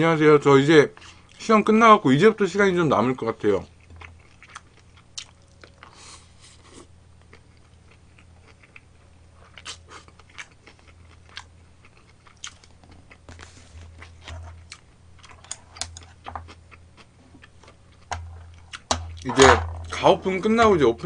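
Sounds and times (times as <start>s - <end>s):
low electrical hum: 0.0s - 21.0s
person chewing food: 3.7s - 20.0s.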